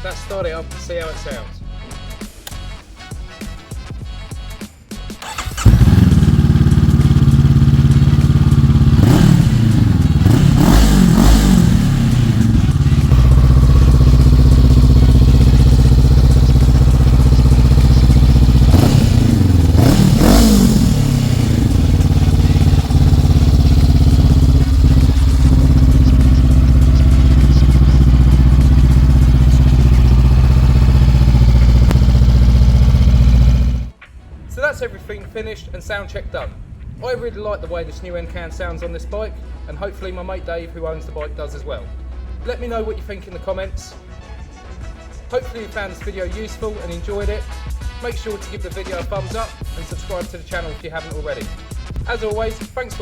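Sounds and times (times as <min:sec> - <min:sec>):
motorcycle engine revving: 0:05.2 - 0:34.0
motorcycle engine starting and idling: 0:05.2 - 0:34.0.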